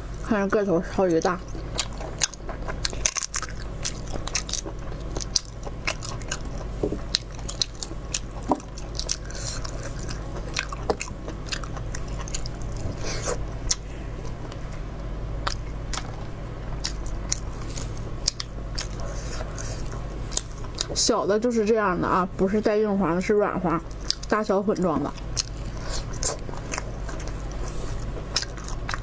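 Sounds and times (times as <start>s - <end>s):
steady low hum: 0.0s - 29.0s
person biting and chewing food: 1.4s - 14.8s, 15.4s - 20.9s, 25.2s - 29.0s.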